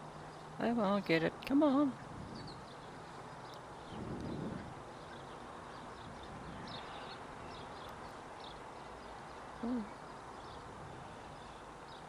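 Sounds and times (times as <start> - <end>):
outdoor background noise: 0.0 - 12.0
small birds chirping: 0.0 - 12.0.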